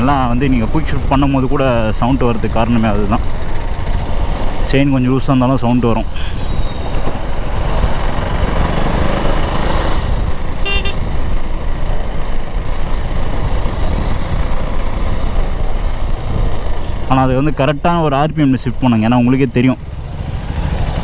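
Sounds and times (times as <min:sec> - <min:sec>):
motorcycle engine rumble: 0:00.0 - 0:21.0
horn toot: 0:10.6 - 0:11.1.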